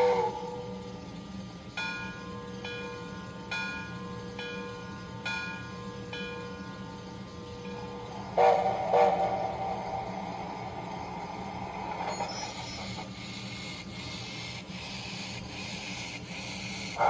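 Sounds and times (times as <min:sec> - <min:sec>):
train whistle blast: 0:00.0 - 0:00.8, 0:08.2 - 0:10.9
steady low hum: 0:00.0 - 0:17.0
locomotive bell ringing: 0:01.8 - 0:11.4.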